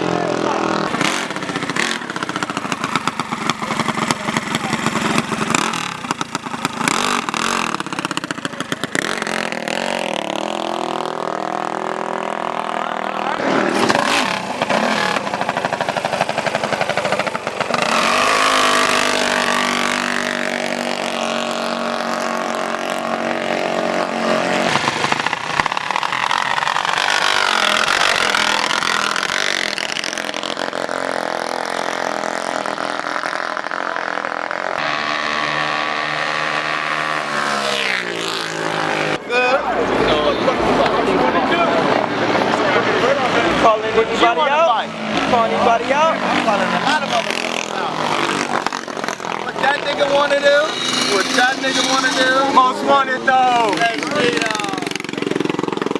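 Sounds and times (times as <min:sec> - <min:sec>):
mini bike engines revving: 0:00.0 - 0:55.9.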